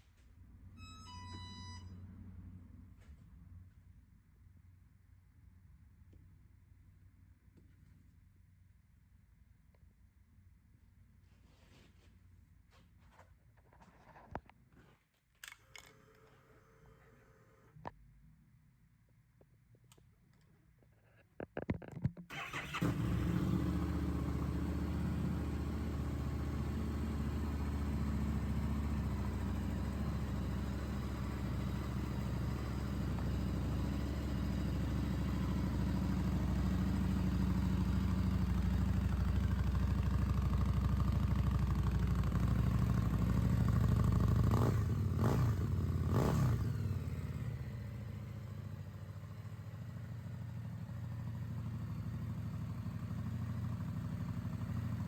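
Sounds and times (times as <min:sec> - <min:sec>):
motorcycle throttle blips: 0:22.3 - 0:23.5
motorcycle engine idling: 0:22.3 - 0:55.0
motorcycle engine starting: 0:22.3 - 0:55.0.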